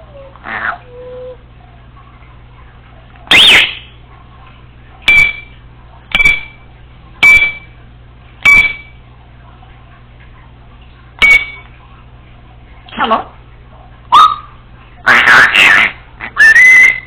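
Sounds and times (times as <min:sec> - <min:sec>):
parrot whistling: 0:03.3 - 0:03.8, 0:16.4 - 0:17.0
parrot beep-like chirps: 0:03.3 - 0:03.9, 0:05.1 - 0:05.5, 0:07.2 - 0:07.6, 0:08.4 - 0:08.9, 0:11.2 - 0:11.6, 0:14.2 - 0:14.5, 0:16.4 - 0:17.0.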